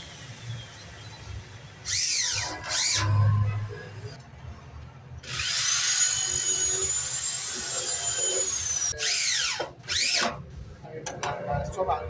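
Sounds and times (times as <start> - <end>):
power drill whining: 5.3 - 10.4.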